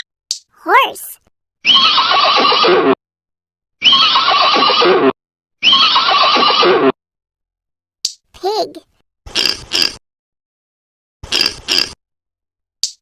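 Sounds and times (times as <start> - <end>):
horse neighing: 5.6 - 6.8.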